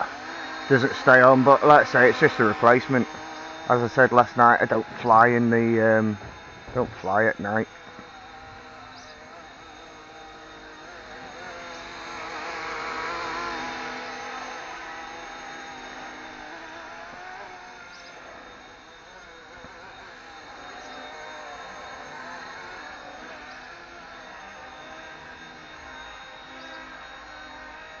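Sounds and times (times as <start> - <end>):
rc helicopter rotor whine: 0.0 - 28.0.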